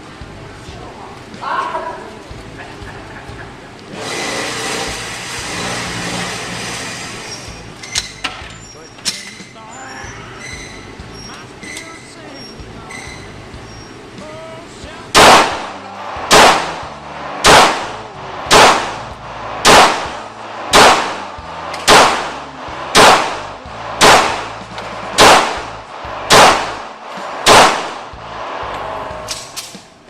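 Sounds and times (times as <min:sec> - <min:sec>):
gunshots with echo: 0:15.1 - 0:29.6.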